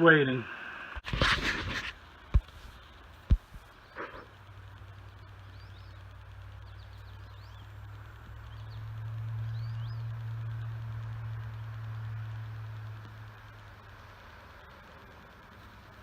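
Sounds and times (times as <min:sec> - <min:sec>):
steady low hum: 0:00.0 - 0:16.0
small birds chirping: 0:02.4 - 0:14.8.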